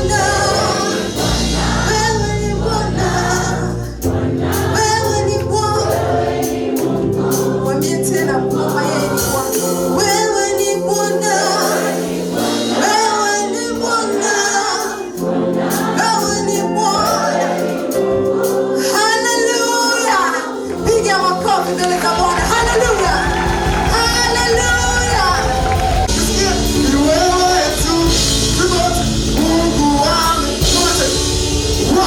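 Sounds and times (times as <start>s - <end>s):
bass line: 0.0s - 11.4s, 20.9s - 32.0s
gospel choir singing: 0.0s - 32.0s
drum beat: 20.8s - 32.0s.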